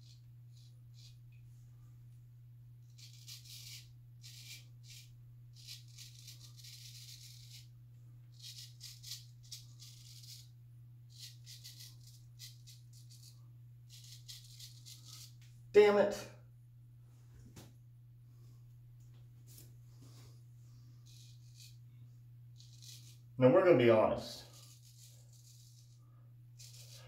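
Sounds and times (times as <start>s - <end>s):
low hum: 0.0s - 27.0s
razor scraping stubble: 2.8s - 7.7s, 8.3s - 10.5s, 11.1s - 15.5s, 20.7s - 23.4s, 24.4s - 27.0s.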